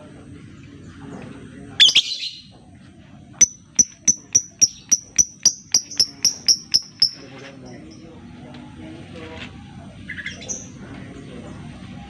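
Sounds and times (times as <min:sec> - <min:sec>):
lovebird chirping: 0:01.8 - 0:02.5, 0:03.4 - 0:08.0.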